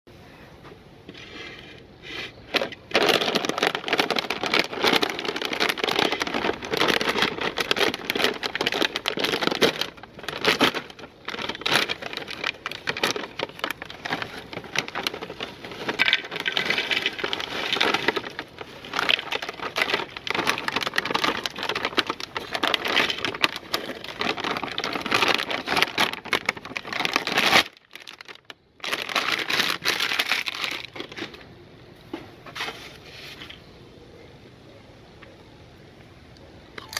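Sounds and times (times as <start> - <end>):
meat grinder crunching chips: 2.7 - 31.2.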